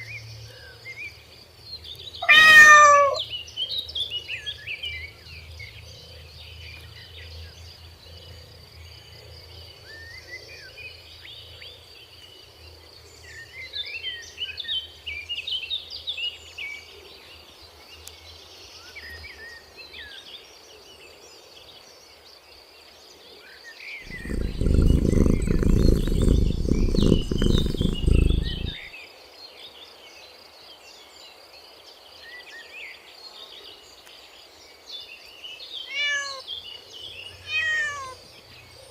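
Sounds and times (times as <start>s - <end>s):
small birds chirping: 2.0s - 3.3s, 24.1s - 28.8s, 37.3s - 38.2s.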